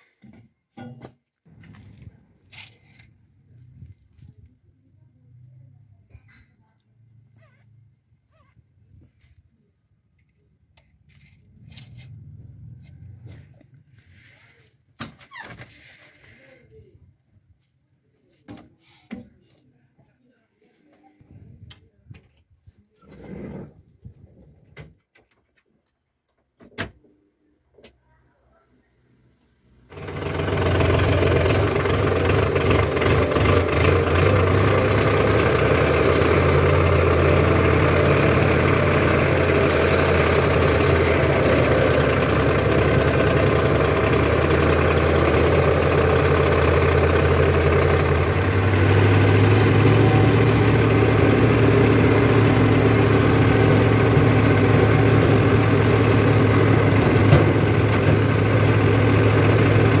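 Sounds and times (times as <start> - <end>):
diesel engine running: 29.7 - 60.0.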